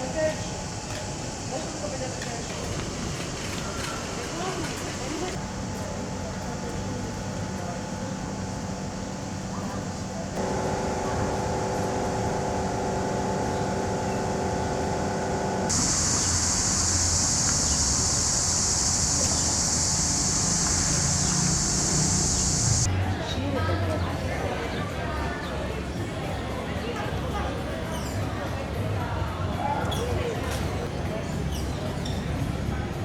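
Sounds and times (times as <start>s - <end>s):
low machine hum: 8.7s - 22.9s
high-pitched buzzing hiss: 10.4s - 22.9s
whining tones: 10.4s - 22.9s.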